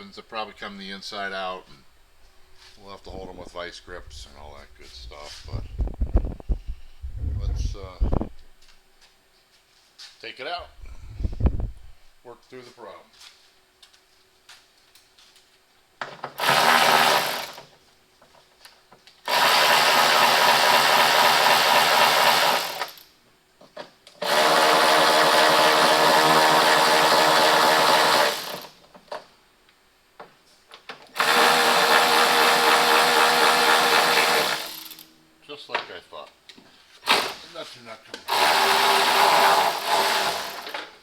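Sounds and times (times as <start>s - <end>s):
handheld power tool running: 16.4s - 17.7s, 19.2s - 23.1s, 24.2s - 28.8s, 31.2s - 35.1s, 37.0s - 37.5s, 38.3s - 40.9s.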